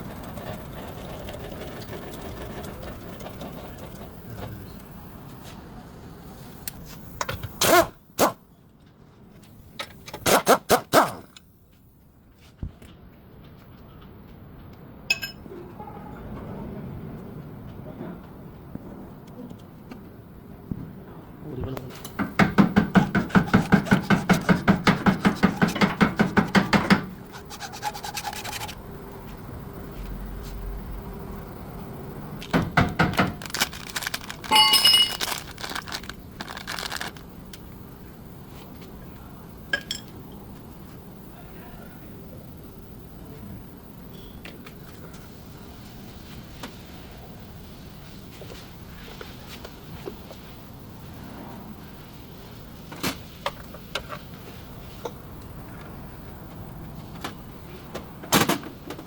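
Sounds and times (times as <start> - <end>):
steady background hum: 0.0 - 59.0
rapid scraping strokes: 22.8 - 28.8
suspension bushes creaking: 33.3 - 37.2.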